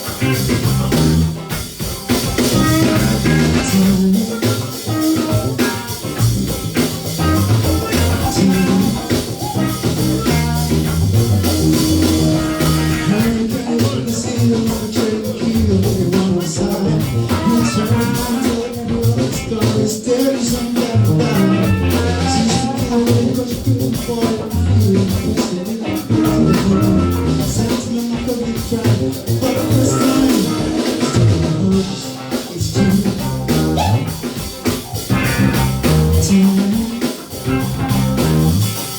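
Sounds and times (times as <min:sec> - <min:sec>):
live rock band playing: 0:00.0 - 0:38.9
person singing: 0:02.5 - 0:06.1, 0:07.1 - 0:38.2.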